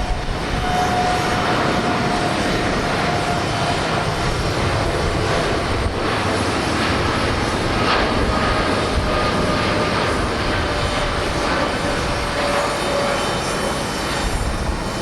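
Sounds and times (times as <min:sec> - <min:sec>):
jet engines at takeoff: 0:00.0 - 0:15.0.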